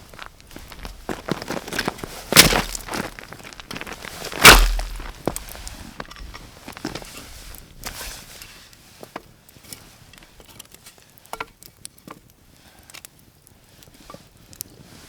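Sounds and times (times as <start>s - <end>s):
twigs snapping underfoot: 0.2s - 5.8s.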